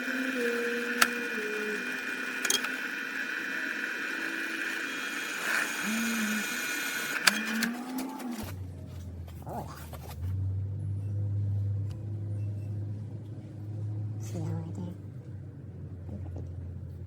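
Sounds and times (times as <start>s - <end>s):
small tool motor whine: 0.0s - 8.6s
lower motor tone rising and falling: 0.0s - 8.7s.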